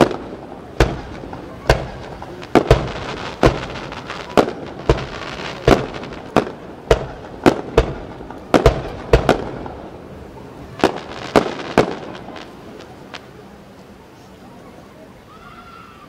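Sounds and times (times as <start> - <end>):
firework shells bursting: 0.0 - 10.0, 10.8 - 13.2.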